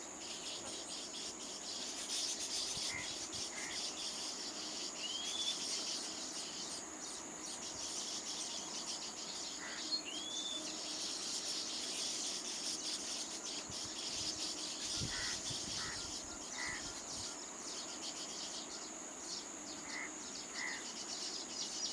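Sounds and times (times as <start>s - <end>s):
insects chirping chorus: 0.0s - 21.9s
bird chirps: 0.2s - 21.9s
bird curved call: 14.6s - 17.3s.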